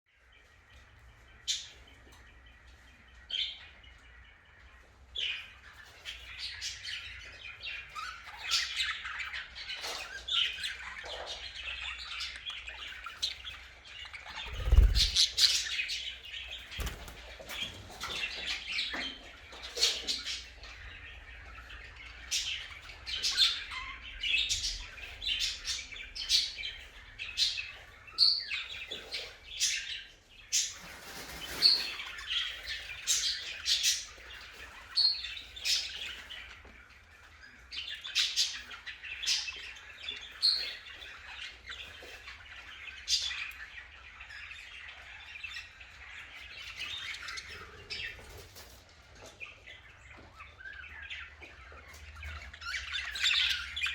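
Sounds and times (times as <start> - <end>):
budgerigars chirping: 5.3 - 18.7, 49.6 - 53.9.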